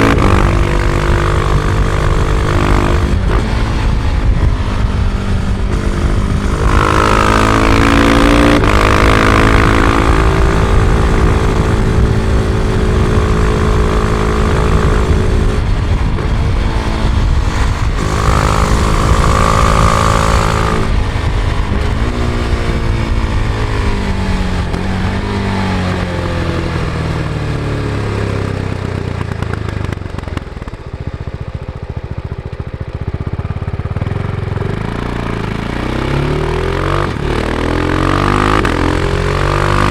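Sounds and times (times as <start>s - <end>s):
wind noise: 0.0s - 30.2s
motorcycle engine revving: 0.0s - 39.9s.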